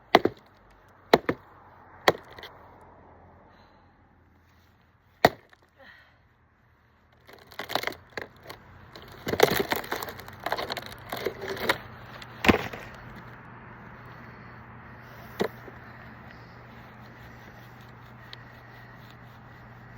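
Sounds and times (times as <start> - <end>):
axe chopping wood: 0.1 - 0.5, 1.1 - 2.5, 5.2 - 5.7, 9.0 - 11.8, 12.4 - 13.1.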